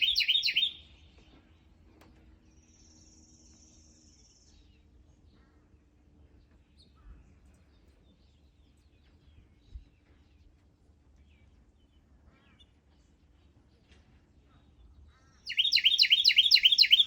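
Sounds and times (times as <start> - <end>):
birds chirping and singing: 0.0 - 1.8, 15.5 - 17.0.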